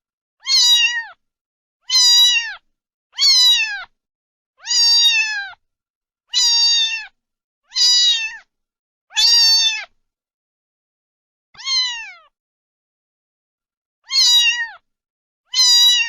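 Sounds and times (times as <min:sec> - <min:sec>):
cat meowing: 0:00.4 - 0:01.2, 0:01.8 - 0:02.6, 0:03.2 - 0:03.9, 0:04.6 - 0:05.6, 0:06.3 - 0:08.5, 0:09.1 - 0:10.0, 0:11.6 - 0:12.4, 0:14.0 - 0:14.8, 0:15.5 - 0:16.0.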